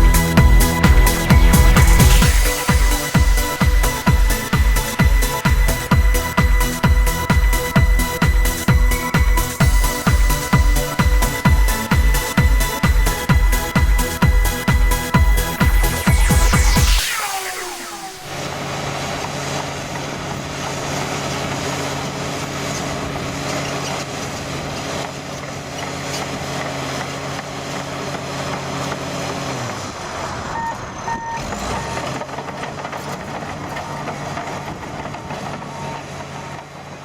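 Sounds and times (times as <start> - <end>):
bulldozer diesel engine running: 0.0 - 17.2, 18.3 - 37.0
reversing alarm beeping: 0.0 - 19.4, 30.5 - 32.2, 35.3 - 36.4.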